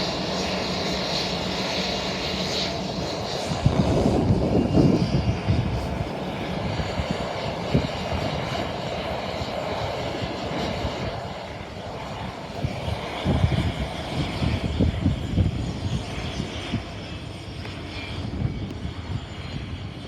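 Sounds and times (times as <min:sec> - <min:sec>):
jet engines roaring: 0:00.0 - 0:20.0
wind buffeting microphone: 0:00.1 - 0:20.0.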